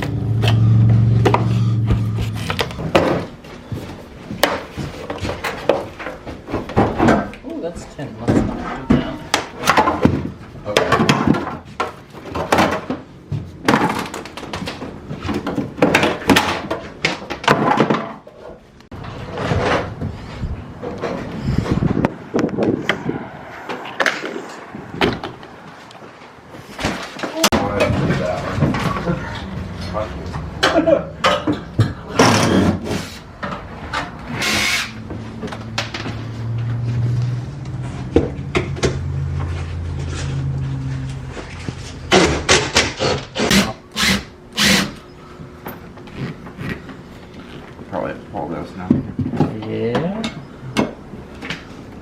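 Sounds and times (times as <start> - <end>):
tools knocking and clattering: 8.2 - 20.2, 30.3 - 32.8.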